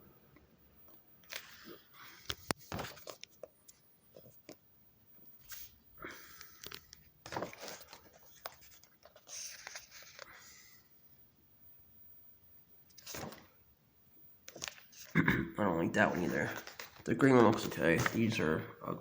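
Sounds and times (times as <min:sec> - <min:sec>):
book pages rustling: 0:01.2 - 0:04.6, 0:05.4 - 0:10.8, 0:12.9 - 0:13.6, 0:14.5 - 0:15.2, 0:15.9 - 0:18.6.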